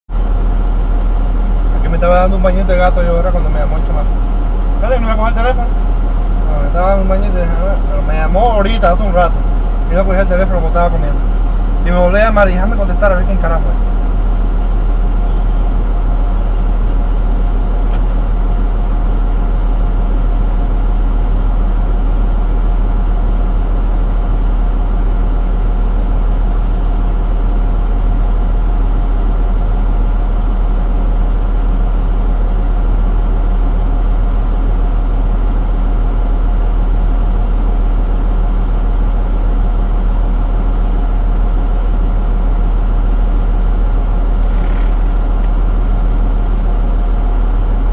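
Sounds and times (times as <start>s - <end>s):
truck engine idling: 0.1s - 47.9s.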